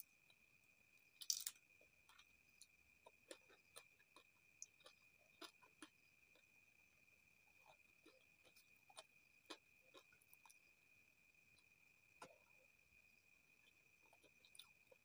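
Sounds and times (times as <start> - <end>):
faint high-pitched hum: 0.0 - 15.0
soft chewing: 1.8 - 6.6, 7.3 - 10.8, 13.5 - 15.0.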